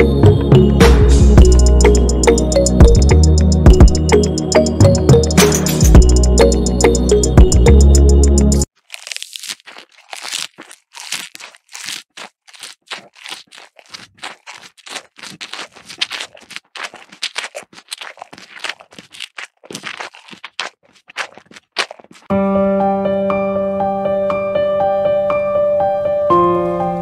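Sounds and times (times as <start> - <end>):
crackling scraping rasps: 8.7 - 22.3.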